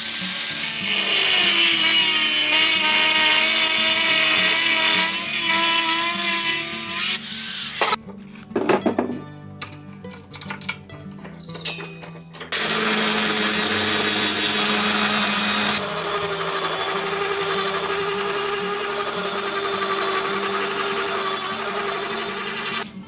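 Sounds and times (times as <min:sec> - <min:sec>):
electric power tool humming: 0:00.0 - 0:08.0, 0:12.5 - 0:22.9.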